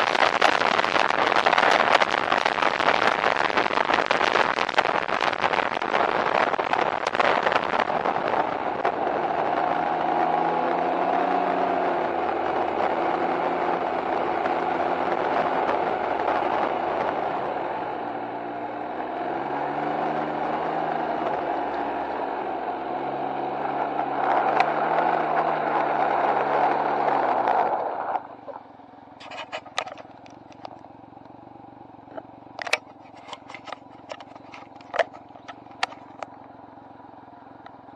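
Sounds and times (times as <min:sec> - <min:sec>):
wind noise: 0:00.0 - 0:18.4
three-wheeler engine running: 0:00.0 - 0:37.9
sharp clicks and knocks: 0:29.2 - 0:30.8, 0:32.1 - 0:36.4.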